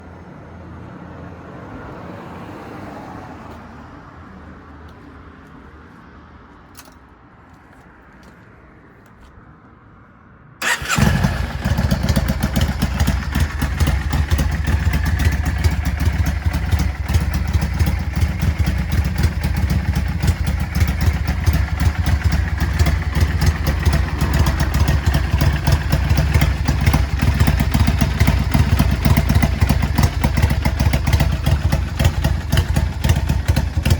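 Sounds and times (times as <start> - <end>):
motorcycle engine starting and idling: 10.6 - 33.9.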